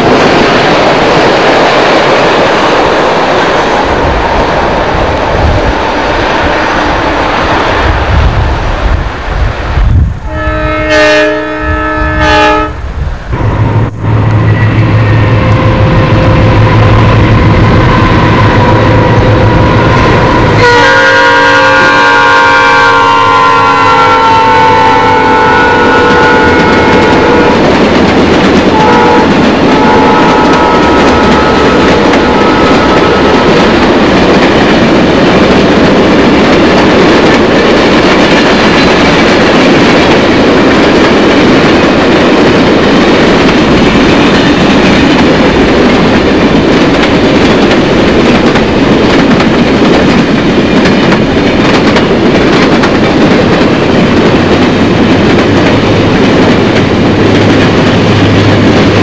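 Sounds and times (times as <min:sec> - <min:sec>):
train passing close: 0:00.0 - 0:59.0
train horn chord: 0:10.3 - 0:12.8, 0:13.4 - 0:27.6, 0:28.7 - 0:33.5.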